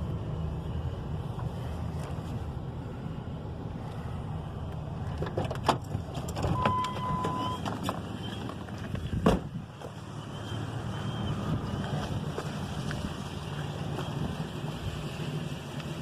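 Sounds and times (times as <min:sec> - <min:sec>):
sharp knocks and clunks: 0:08.9 - 0:09.6.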